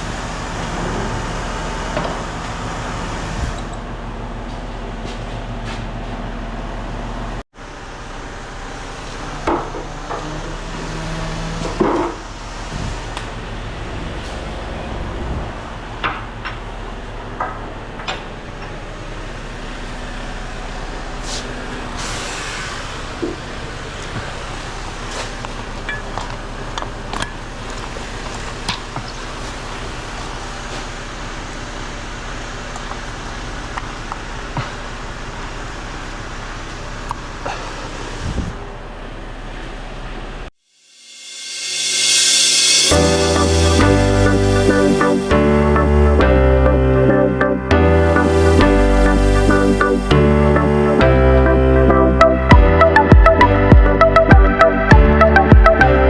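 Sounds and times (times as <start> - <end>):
heavy truck engine running: 0.0 - 40.5, 42.6 - 56.0.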